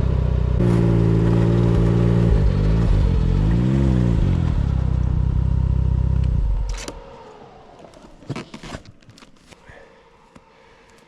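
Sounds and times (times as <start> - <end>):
snowmobile engine idling and revving: 0.0 - 8.3.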